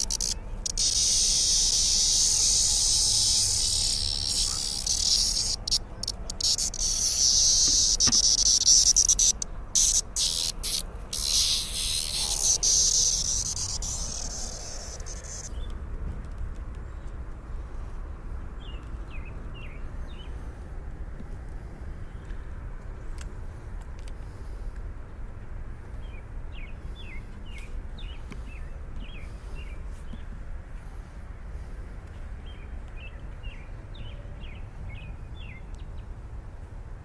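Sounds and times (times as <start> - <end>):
cicadas buzzing: 0.0 - 15.6.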